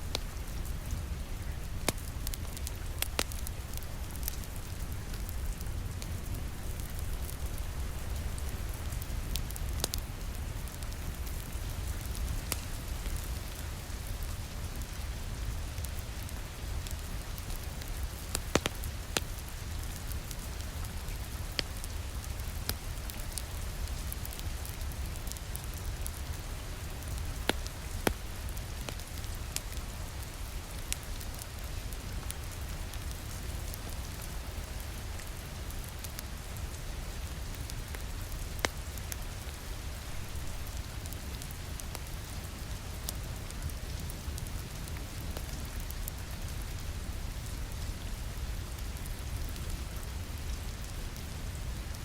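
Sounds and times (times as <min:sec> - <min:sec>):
wood fire crackling: 0:00.0 - 0:52.0.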